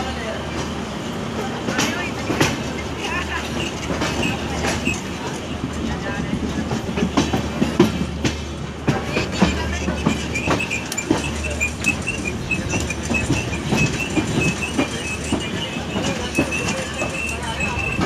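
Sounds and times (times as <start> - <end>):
train wheels clattering on rails: 0.0 - 18.0
high pulsing squeal: 10.1 - 18.0.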